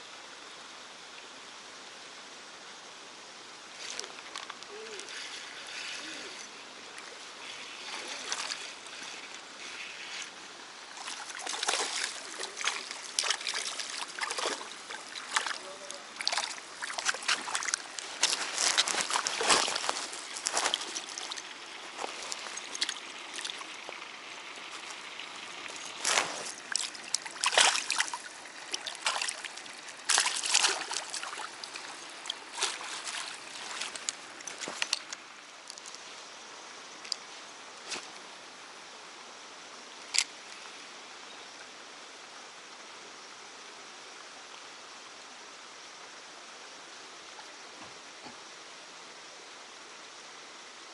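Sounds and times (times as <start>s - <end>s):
water trickling: 3.7s - 36.1s
water splashing and sloshing: 3.7s - 36.3s.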